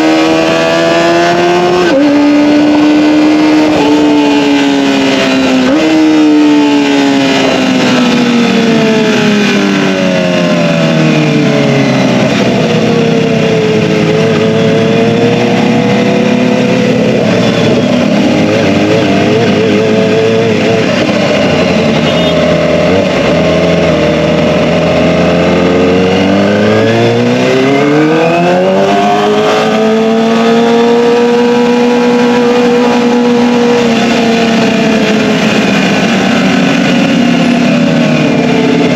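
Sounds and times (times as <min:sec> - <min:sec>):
motorcycle engine: 0:00.0 - 0:38.9.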